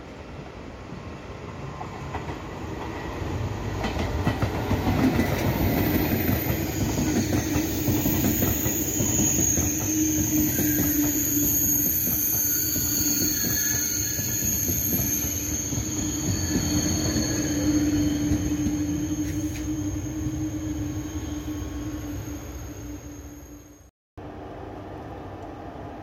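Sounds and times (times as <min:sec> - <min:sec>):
train passing: 0:00.0 - 0:26.0
high-pitched wheel squeal: 0:05.5 - 0:23.9.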